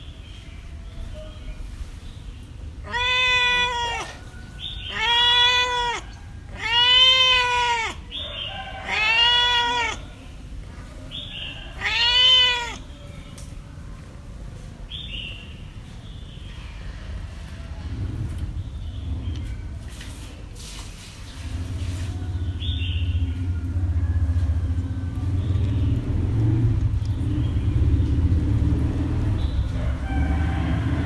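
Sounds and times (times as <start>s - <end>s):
cat meowing: 2.8s - 10.2s, 11.5s - 13.0s.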